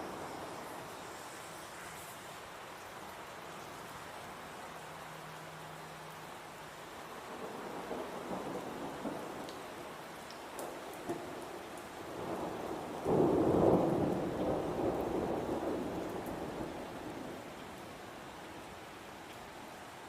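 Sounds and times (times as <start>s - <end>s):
steady rain: 0.0s - 20.0s
thunder rumbling: 12.1s - 17.5s.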